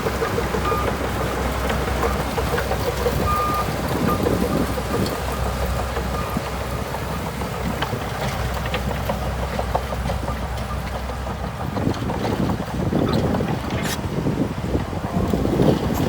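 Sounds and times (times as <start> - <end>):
diesel engine running: 0.0 - 16.0
wind on microphone: 11.8 - 16.0.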